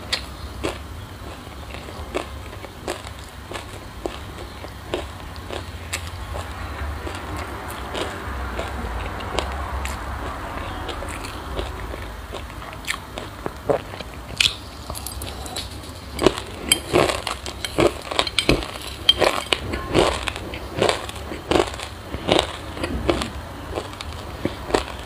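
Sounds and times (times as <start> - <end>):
chewing crunchy seeds: 0.0 - 25.0.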